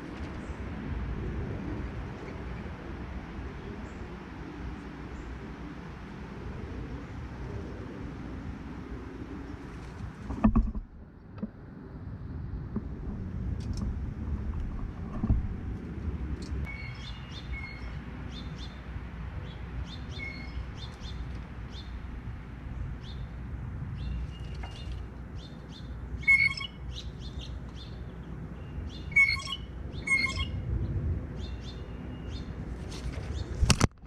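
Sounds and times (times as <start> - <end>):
low background rumble: 6.3 - 21.1
small birds chirping: 16.6 - 18.8, 24.0 - 30.6.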